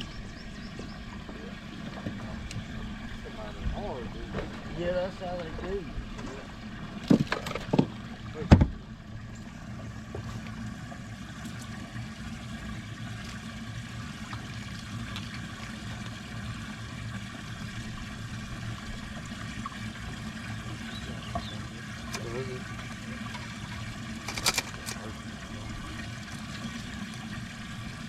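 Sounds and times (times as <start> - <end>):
boat rumbling on water: 0.0 - 28.0.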